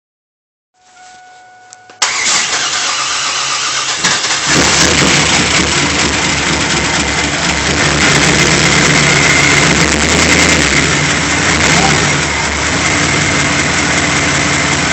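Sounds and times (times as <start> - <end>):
starter cranking engine: 2.0 - 8.7
car engine running with misfire: 2.0 - 14.9.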